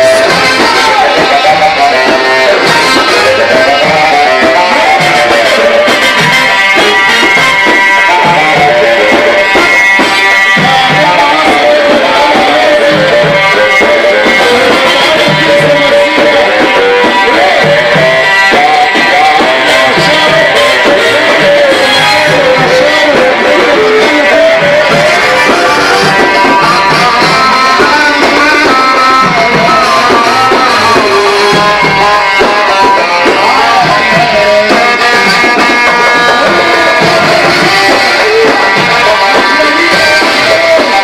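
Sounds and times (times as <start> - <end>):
ornamented melody with sliding notes: 0.0 - 41.0
steady drum percussion: 0.0 - 41.0.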